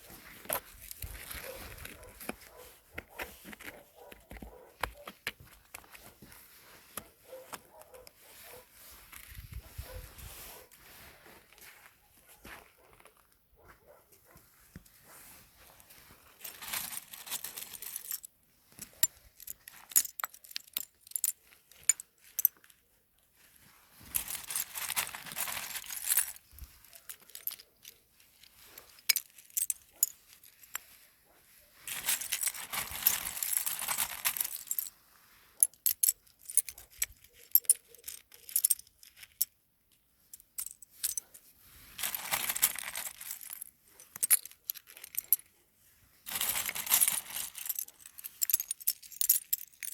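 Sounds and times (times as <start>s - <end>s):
small hard objects rattling: 15.8s - 22.7s, 24.0s - 31.0s, 31.9s - 35.0s, 35.7s - 39.5s, 40.3s - 45.5s, 46.3s - 49.9s.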